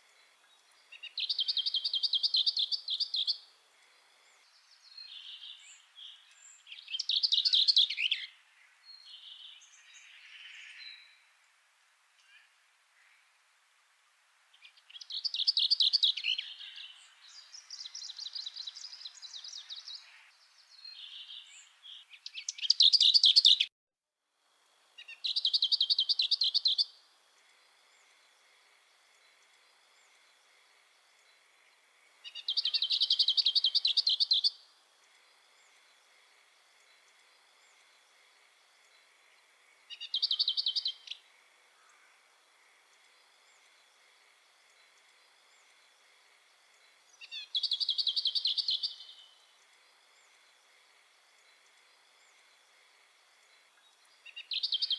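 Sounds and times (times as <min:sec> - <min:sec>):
songbird trilling: 0:00.9 - 0:03.4, 0:21.0 - 0:23.7, 0:25.0 - 0:26.9, 0:32.2 - 0:34.6, 0:39.9 - 0:41.2, 0:47.2 - 0:49.3.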